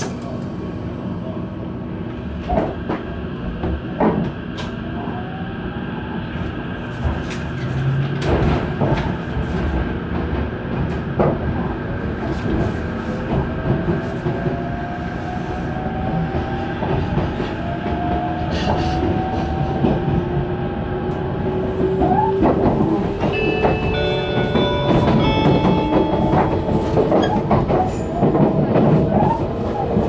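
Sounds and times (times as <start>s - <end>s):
train rumble: 0.0s - 30.0s
wheels clattering on rail joints: 21.7s - 30.0s.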